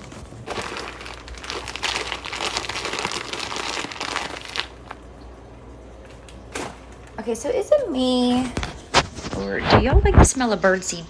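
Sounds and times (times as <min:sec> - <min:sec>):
bag crinkling and rustling: 0:00.0 - 0:05.1.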